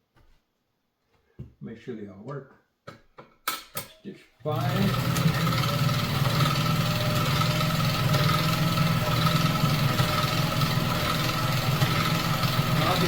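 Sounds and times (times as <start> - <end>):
sewing machine running: 4.5 - 13.0.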